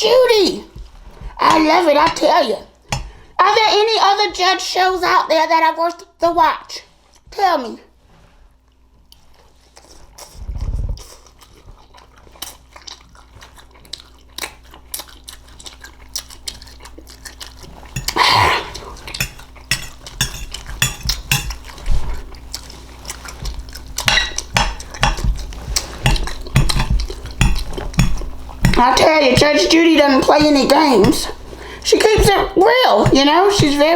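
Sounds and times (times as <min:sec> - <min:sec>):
utensils clinking on a dish: 0:19.2 - 0:21.7, 0:24.0 - 0:25.3.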